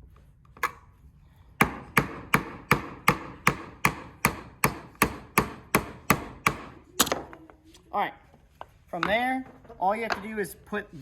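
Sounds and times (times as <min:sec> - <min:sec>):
hammer driving nail into wood: 0:01.6 - 0:07.2.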